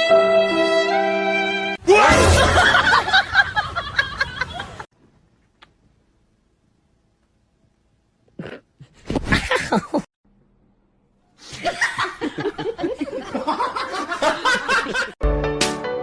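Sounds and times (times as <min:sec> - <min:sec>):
music: 0:00.0 - 0:01.8, 0:15.2 - 0:16.0
people laughing: 0:02.1 - 0:04.9, 0:11.5 - 0:15.2.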